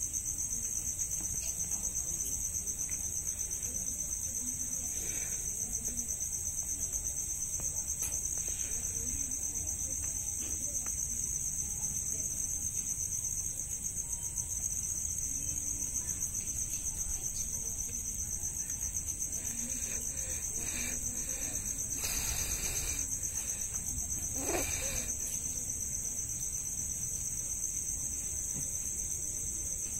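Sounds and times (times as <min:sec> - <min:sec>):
insect trilling: 0:16.3 - 0:25.7.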